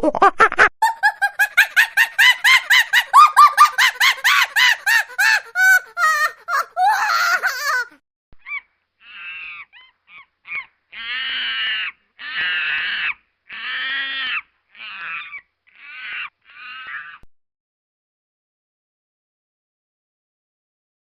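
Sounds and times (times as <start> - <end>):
harsh animal calls: 0.9 - 17.3.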